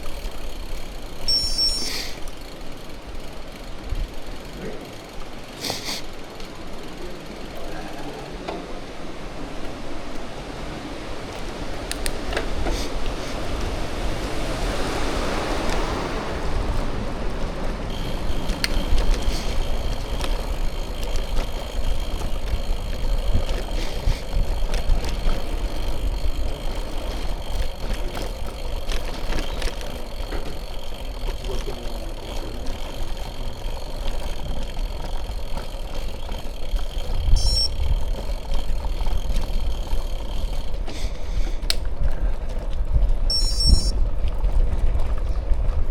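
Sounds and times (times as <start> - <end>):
bicycle tyres rolling: 0.0 - 45.9
bike clicks and rattles: 0.0 - 45.9
wind rumbling on microphone: 9.0 - 31.1, 34.2 - 45.9.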